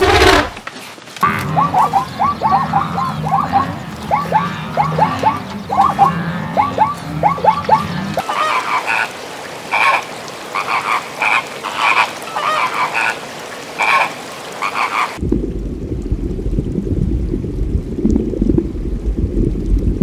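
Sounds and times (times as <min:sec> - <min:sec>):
flamingos honking: 0:00.0 - 0:00.6, 0:01.2 - 0:15.2
low underwater rushing: 0:00.0 - 0:20.0.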